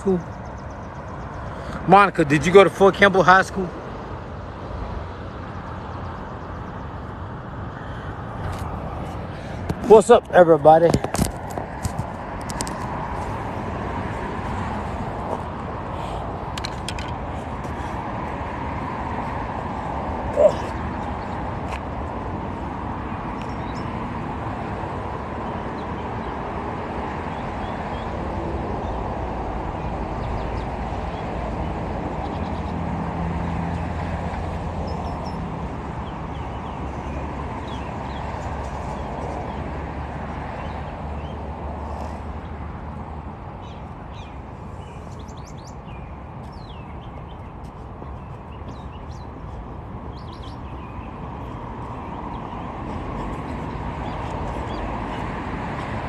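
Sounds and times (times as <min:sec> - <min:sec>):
small birds chirping: 0:19.2 - 0:24.0, 0:34.8 - 0:39.7, 0:43.6 - 0:55.9.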